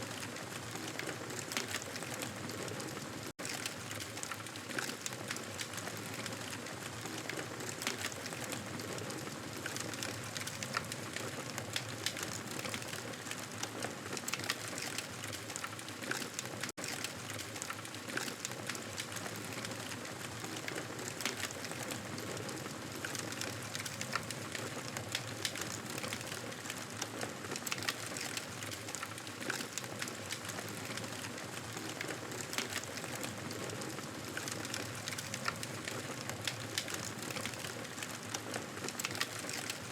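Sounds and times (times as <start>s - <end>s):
campfire crackling and popping: 9.6s - 39.9s.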